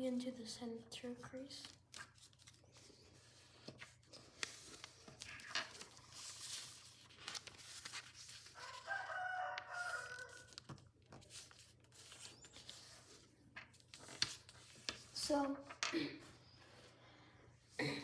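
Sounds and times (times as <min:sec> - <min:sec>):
paper being folded and creased: 0:01.5 - 0:15.4.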